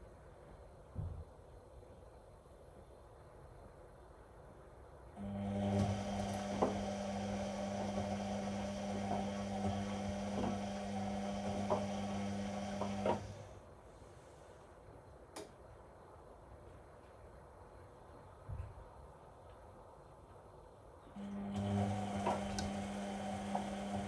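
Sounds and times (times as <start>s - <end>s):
drain pump humming: 5.2s - 13.5s, 21.2s - 24.0s.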